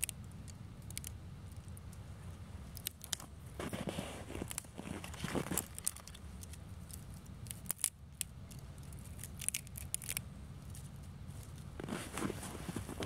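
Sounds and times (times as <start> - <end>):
dry twigs snapping: 0.0 - 2.0, 2.6 - 3.3, 4.4 - 11.9.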